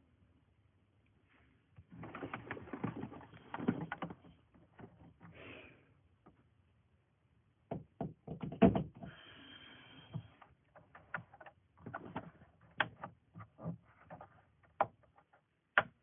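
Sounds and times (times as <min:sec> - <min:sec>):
handling knocks and rattles: 0:01.8 - 0:05.3.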